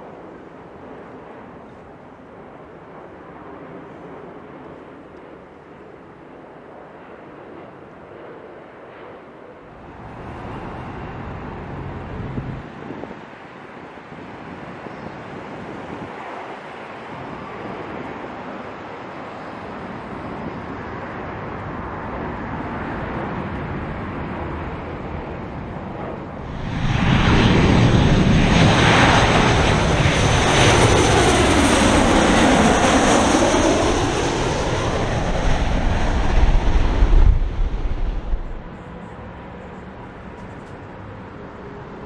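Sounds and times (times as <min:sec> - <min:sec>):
jet airliner engines rushing: 0:00.0 - 0:42.0
high turbine whine: 0:25.5 - 0:40.2.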